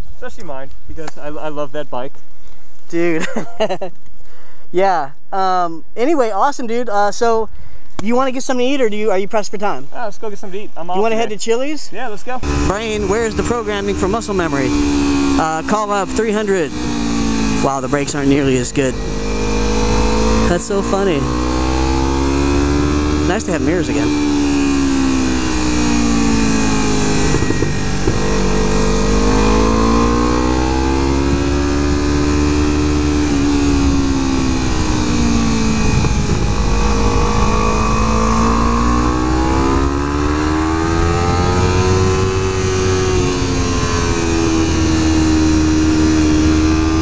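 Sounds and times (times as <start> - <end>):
low wind rumble: 12.2 - 47.0
motorcycle engine revving: 12.4 - 47.0.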